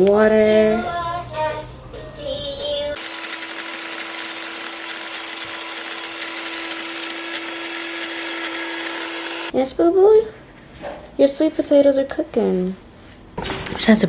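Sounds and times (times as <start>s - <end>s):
blender motor whirring: 3.0s - 9.5s.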